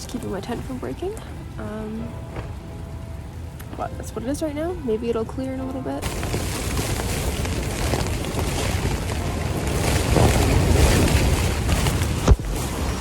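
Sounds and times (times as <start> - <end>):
wind gusting against tent: 6.0 - 13.0.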